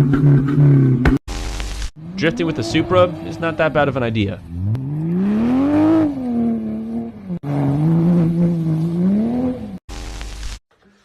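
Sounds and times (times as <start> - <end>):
car engine revving: 2.0 - 9.8
second car engine: 2.0 - 10.3.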